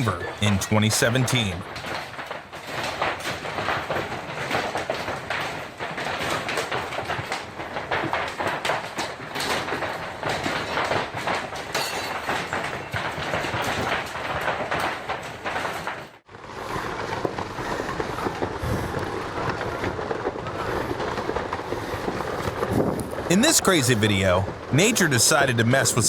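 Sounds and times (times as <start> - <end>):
hail pelting down: 0.0 - 26.0
smooth steady rushing clatter: 0.0 - 26.0.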